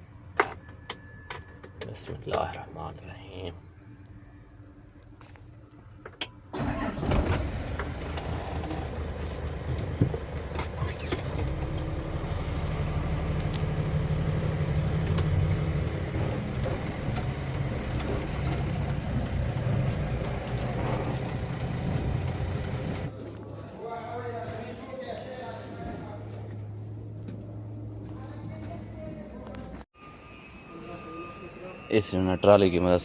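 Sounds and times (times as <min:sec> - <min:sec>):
diesel engine starting and running: 0:06.2 - 0:29.9
rattles: 0:06.6 - 0:23.1.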